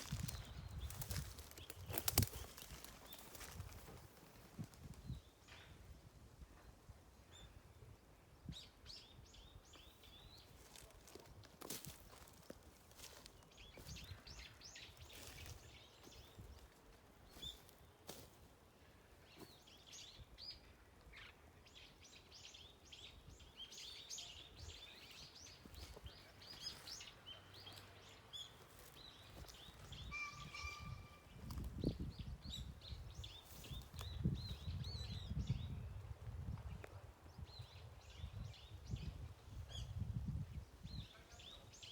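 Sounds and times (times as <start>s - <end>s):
small birds chirping: 0.0s - 5.7s, 8.6s - 18.4s, 19.2s - 41.9s
wind rumble on microphone: 0.0s - 7.0s, 29.6s - 41.2s.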